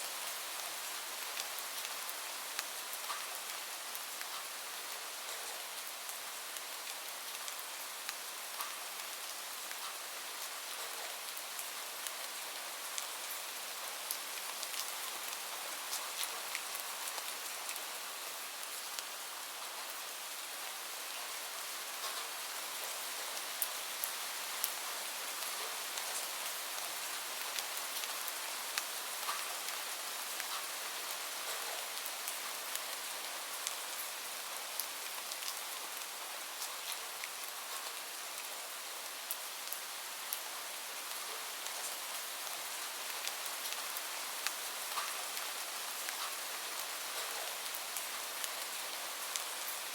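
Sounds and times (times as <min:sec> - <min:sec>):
rain hiss: 0:00.0 - 0:49.9.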